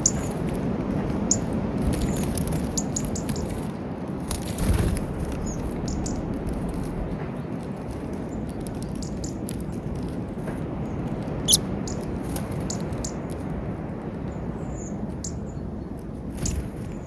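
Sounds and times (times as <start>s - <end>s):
steady low rumble: 4.2s - 12.0s.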